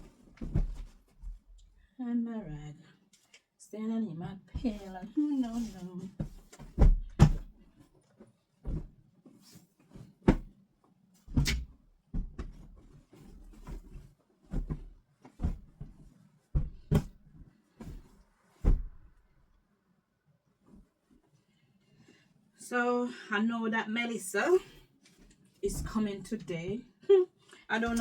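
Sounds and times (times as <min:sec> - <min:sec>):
heavy thuds: 0:00.0 - 0:01.4, 0:04.6 - 0:07.6, 0:16.6 - 0:17.2, 0:17.8 - 0:19.2.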